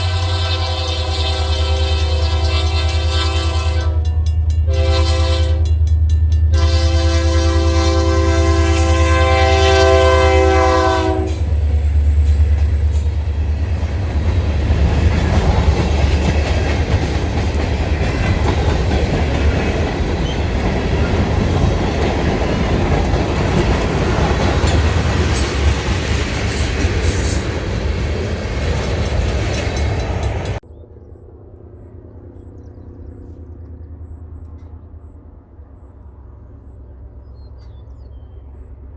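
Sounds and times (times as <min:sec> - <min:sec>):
train air horn chord: 0:00.0 - 0:11.5
locomotive engine rumble: 0:00.0 - 0:30.6
wheels clattering over rail joints: 0:11.7 - 0:30.6.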